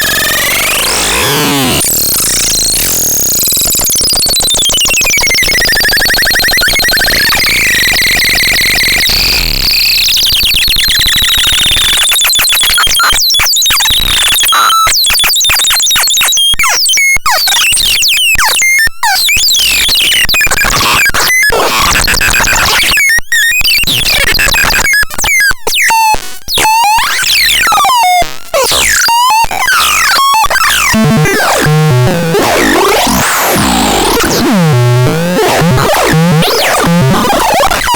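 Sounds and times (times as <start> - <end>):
synthesizer stuttering fragments: 28.6 - 37.9.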